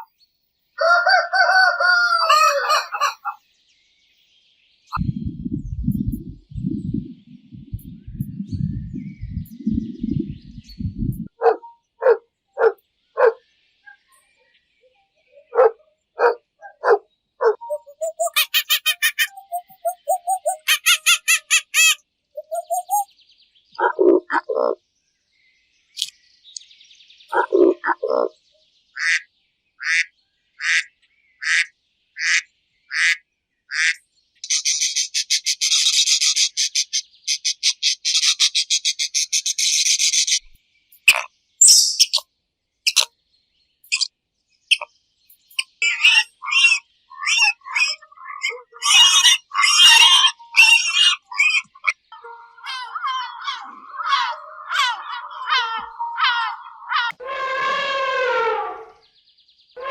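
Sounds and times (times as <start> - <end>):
high animal chirps: 15.4 - 23.1, 42.9 - 43.1, 43.9 - 44.1, 44.7 - 57.8.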